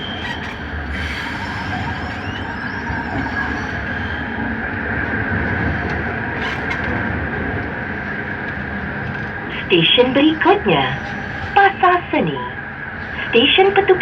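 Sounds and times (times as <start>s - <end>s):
high whine: 0.0s - 14.0s
train running gear rumble: 0.0s - 14.0s.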